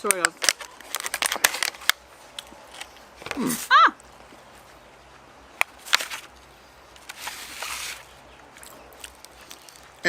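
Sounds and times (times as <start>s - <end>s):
food packaging rustling: 0.0s - 2.0s, 5.8s - 10.0s
packaging crackle: 0.0s - 2.0s.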